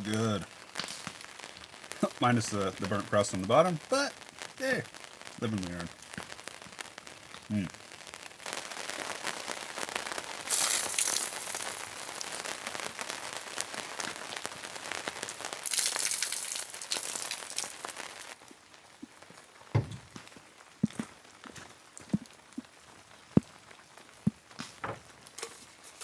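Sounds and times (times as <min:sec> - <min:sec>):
rain pattering: 0:00.0 - 0:26.0
knocks: 0:19.8 - 0:20.2, 0:24.6 - 0:25.1.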